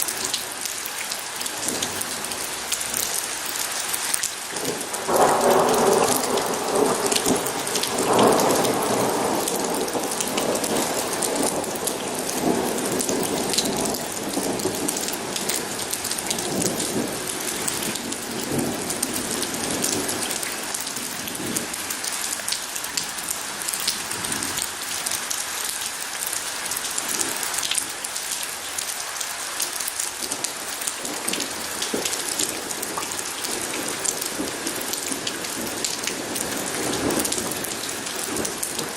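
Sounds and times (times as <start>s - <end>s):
steady rain falling: 0.0s - 38.9s
thunder rumble: 4.7s - 20.4s.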